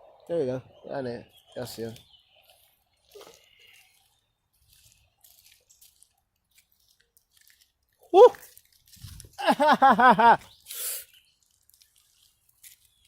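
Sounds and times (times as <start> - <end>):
small crackles: 1.7 - 13.0
barefoot footsteps on wet rocks: 2.4 - 10.7, 11.3 - 13.0.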